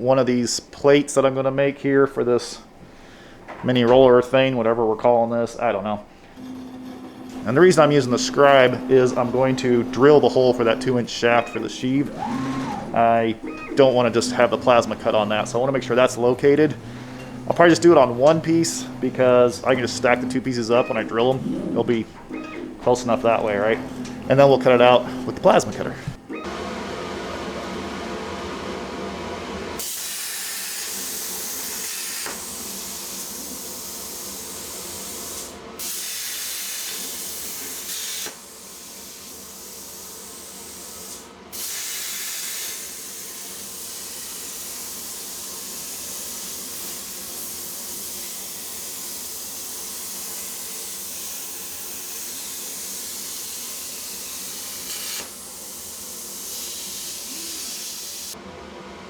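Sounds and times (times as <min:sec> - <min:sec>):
plasma cutter arc hissing: 0:29.8 - 0:58.4.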